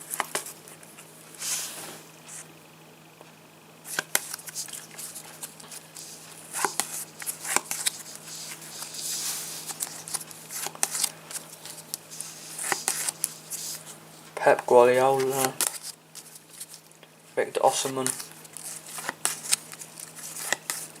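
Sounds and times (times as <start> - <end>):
cards rustling: 3.9 - 17.0, 17.6 - 21.0.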